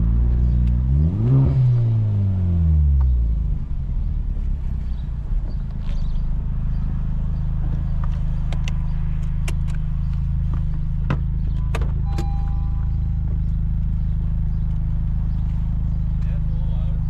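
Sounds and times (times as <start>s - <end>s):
car engine droning: 0.0s - 17.0s
short tone: 11.5s - 13.3s.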